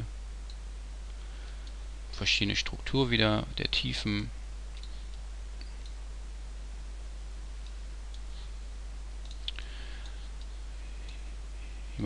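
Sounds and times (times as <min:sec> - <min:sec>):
low electrical hum: 0:00.0 - 0:12.0
computer mouse clicks: 0:09.2 - 0:11.2.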